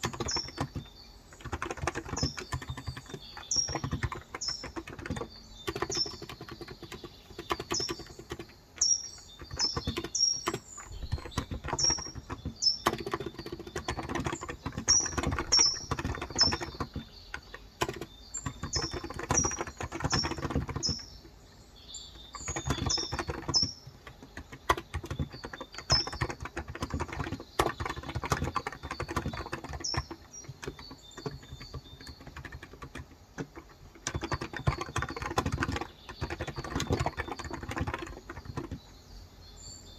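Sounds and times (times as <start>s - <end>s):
fast typing on a keyboard: 0.0s - 39.0s
small birds chirping: 0.0s - 39.9s.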